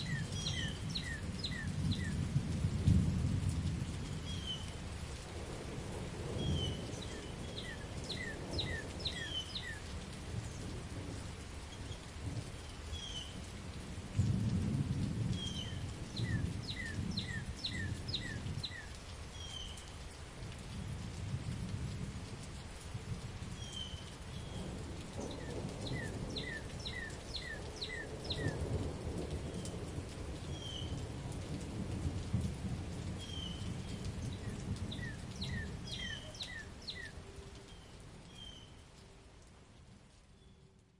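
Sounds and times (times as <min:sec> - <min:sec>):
bird chirping: 0:00.0 - 0:02.2, 0:25.9 - 0:28.6, 0:34.9 - 0:38.8
rolling thunder: 0:00.0 - 0:04.6, 0:13.9 - 0:18.7, 0:24.3 - 0:37.0
steady rain: 0:00.0 - 0:40.9.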